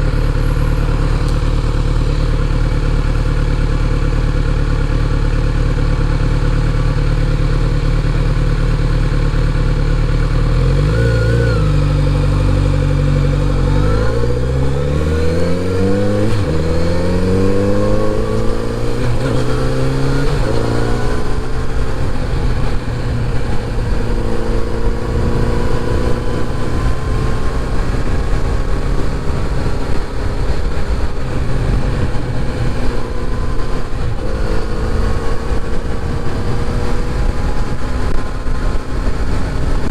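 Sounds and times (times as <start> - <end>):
motorcycle engine revving: 0.0 - 39.9
gear shifts: 10.6 - 39.9.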